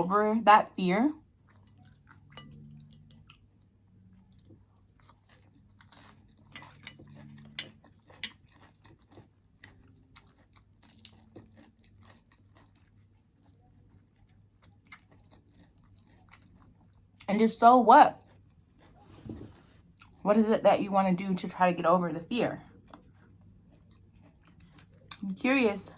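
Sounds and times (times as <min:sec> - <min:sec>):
person chewing crunchy food: 0:01.2 - 0:17.3, 0:18.1 - 0:20.2, 0:22.6 - 0:25.3.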